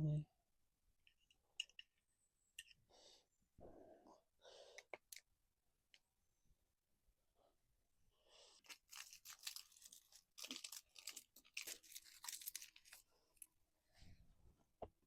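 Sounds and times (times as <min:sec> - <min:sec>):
crunchy food being chewed: 0:08.6 - 0:13.4.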